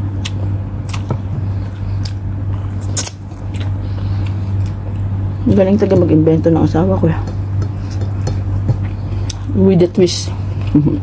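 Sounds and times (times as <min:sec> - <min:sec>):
steady low hum: 0:00.0 - 0:11.0
chewing and biting: 0:00.2 - 0:05.1.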